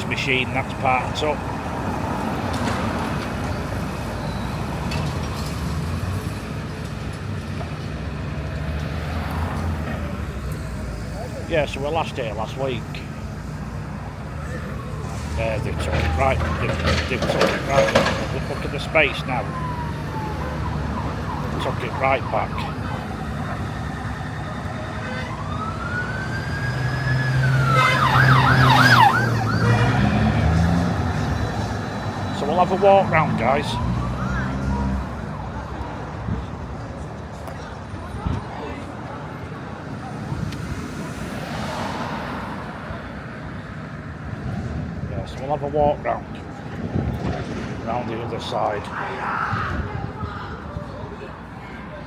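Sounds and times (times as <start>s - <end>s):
emergency vehicle siren: 0.0s - 36.9s, 45.5s - 52.0s
low traffic rumble: 0.0s - 52.0s
outdoor noise: 0.0s - 52.0s.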